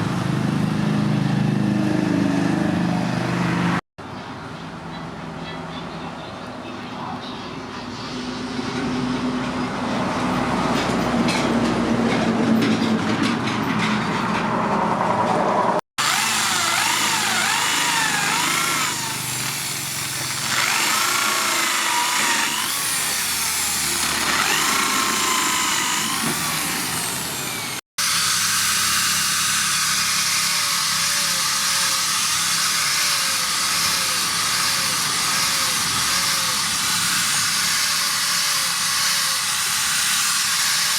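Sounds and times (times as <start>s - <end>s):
power tool working steel: 16.0s - 40.9s.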